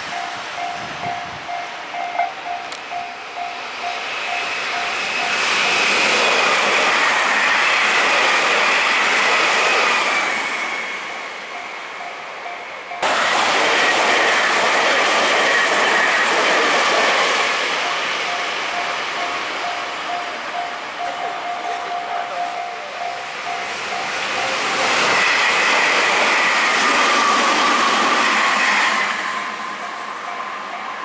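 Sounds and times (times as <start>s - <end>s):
level crossing warning bell: 0.0s - 6.0s, 11.5s - 13.1s, 17.7s - 25.3s, 29.8s - 31.0s
electric train passing: 0.0s - 31.0s.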